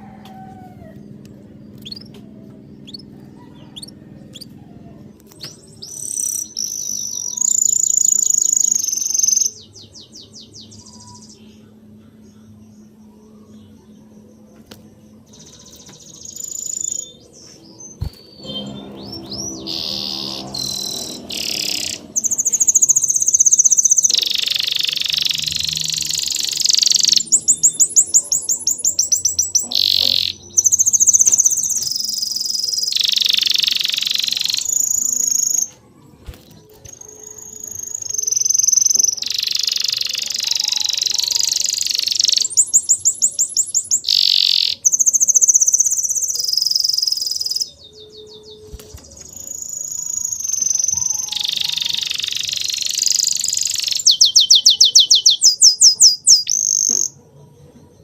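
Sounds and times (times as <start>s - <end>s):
songbirds singing: 0.0s - 58.0s
low steady tones: 1.0s - 40.6s.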